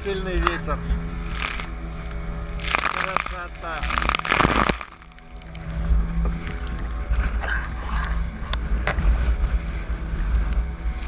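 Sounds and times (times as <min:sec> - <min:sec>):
boat engine drone: 0:00.0 - 0:11.0
wind rumble on microphone: 0:00.0 - 0:11.0
wave spray rushing: 0:02.6 - 0:05.1.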